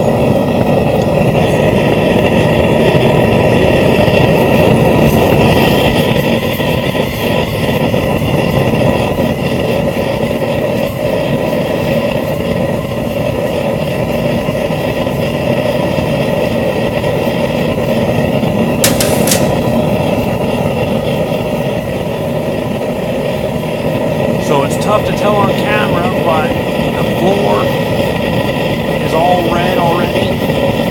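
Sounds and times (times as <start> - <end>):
gas burner rushing: 0.0 - 30.9.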